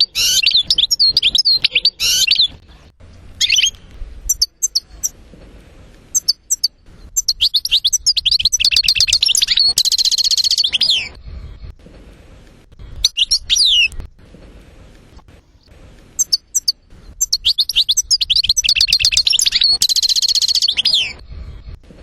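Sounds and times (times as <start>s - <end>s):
goldfinch singing: 0.0s - 5.2s, 6.1s - 11.1s, 13.0s - 14.0s, 16.2s - 21.2s.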